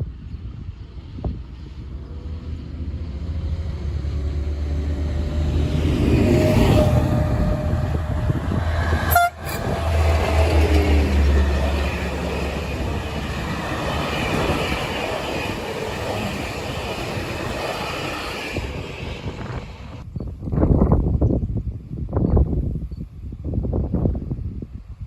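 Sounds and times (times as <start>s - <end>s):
train passing rumble: 0.0s - 20.2s
wheels rolling on track: 9.4s - 20.0s.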